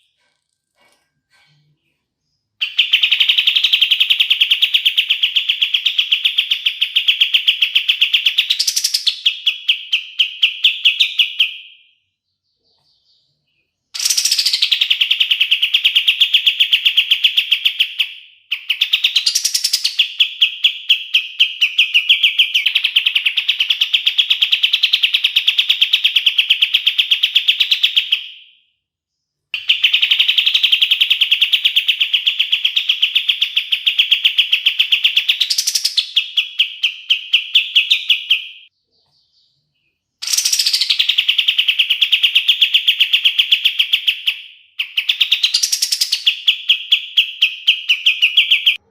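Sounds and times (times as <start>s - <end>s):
songbird fast trill: 14.0s - 28.2s, 29.6s - 38.7s, 39.6s - 48.8s.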